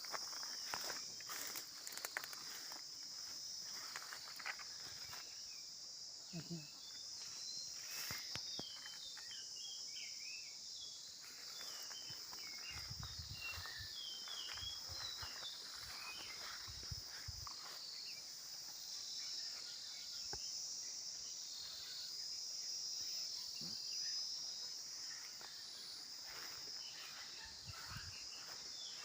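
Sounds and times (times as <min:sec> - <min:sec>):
high insect drone: 0:00.0 - 0:29.0.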